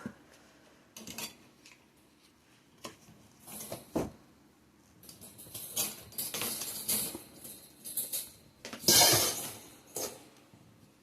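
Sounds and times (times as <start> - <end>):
metal poles clattering and rattling: 5.0 - 10.4.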